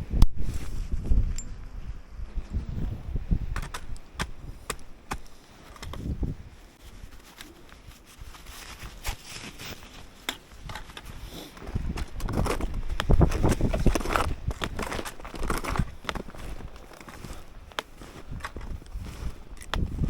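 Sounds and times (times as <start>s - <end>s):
snowshoe steps crunching snow: 4.3s - 20.0s.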